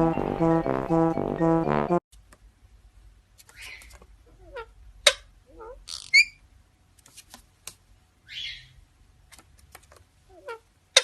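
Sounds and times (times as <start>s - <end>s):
parrot chirping and squawking: 3.5s - 6.4s, 8.3s - 8.8s.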